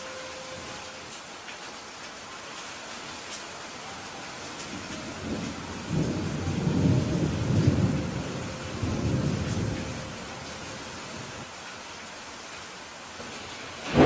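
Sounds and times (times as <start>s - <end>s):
steady rain falling: 0.0s - 14.0s
thunder rumbling: 4.6s - 11.4s, 13.8s - 14.0s.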